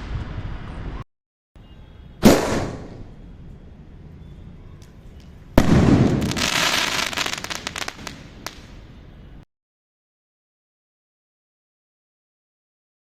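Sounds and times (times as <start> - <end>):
firework bangs: 2.2 - 3.1, 5.6 - 8.8
firework crackling: 5.6 - 8.8.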